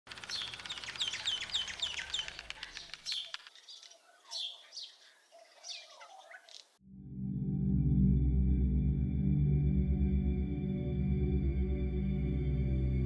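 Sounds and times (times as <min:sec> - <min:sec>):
wild birdsong: 0:00.1 - 0:06.8.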